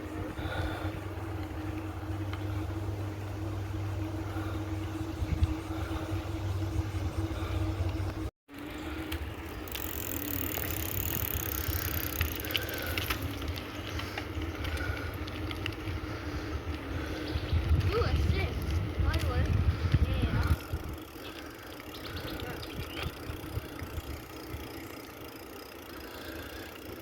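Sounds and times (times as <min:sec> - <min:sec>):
bicycle tyre hum: 0:00.0 - 0:27.0
wind rumble on microphone: 0:04.8 - 0:08.3, 0:15.6 - 0:21.2, 0:22.0 - 0:24.7
small ticks: 0:07.7 - 0:16.9.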